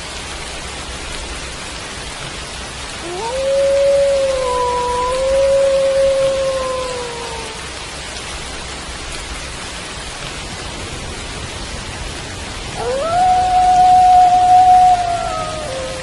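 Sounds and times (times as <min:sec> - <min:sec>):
steady rain: 0:00.0 - 0:16.0
wolf howling: 0:03.0 - 0:07.8, 0:12.8 - 0:16.0.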